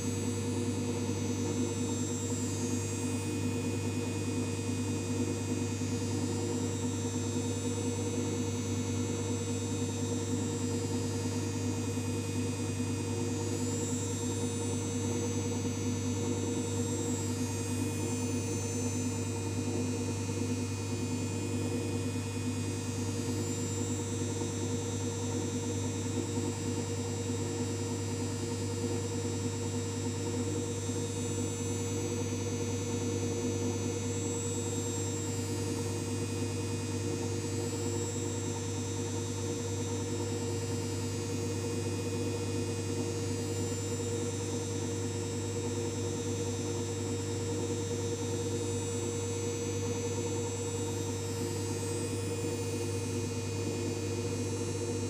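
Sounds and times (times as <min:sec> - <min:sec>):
washing machine humming: 0:28.5 - 0:55.0.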